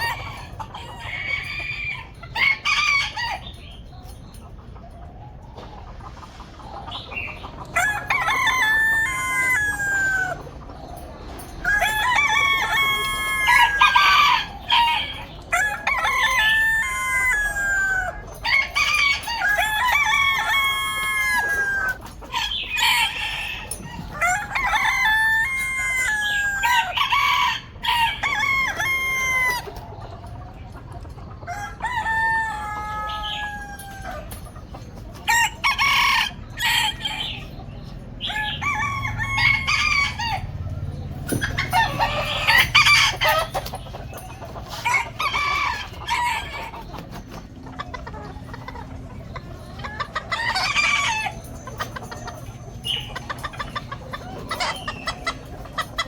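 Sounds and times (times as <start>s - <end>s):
roosters crowing: 0.0s - 56.0s.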